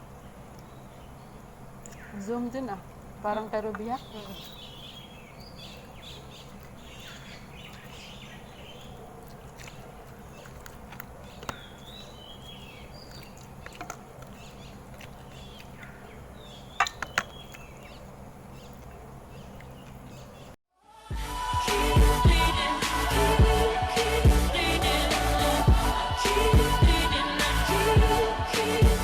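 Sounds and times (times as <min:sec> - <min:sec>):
low background hum: 0:00.0 - 0:20.6
small birds chirping: 0:00.0 - 0:20.6.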